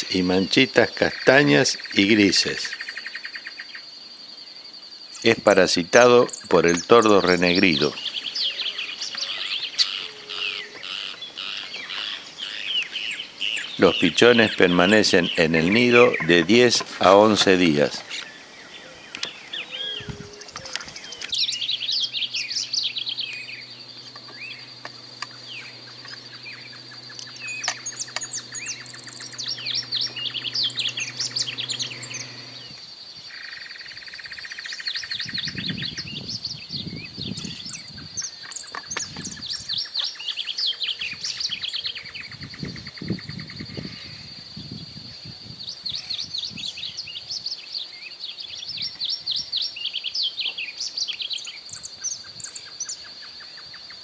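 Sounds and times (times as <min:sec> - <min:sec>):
bird singing warbled phrases: 0:00.0 - 0:54.0.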